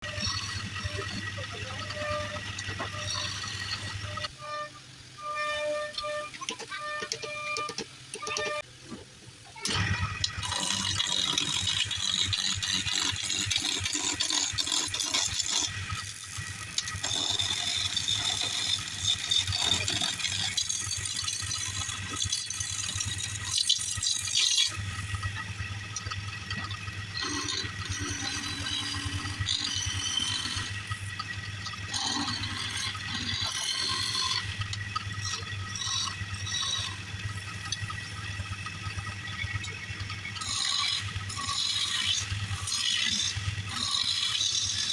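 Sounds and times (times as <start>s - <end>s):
turning tool cutting wood: 0.0s - 8.6s, 9.6s - 44.9s
wood lathe humming: 0.0s - 8.6s, 10.2s - 44.9s.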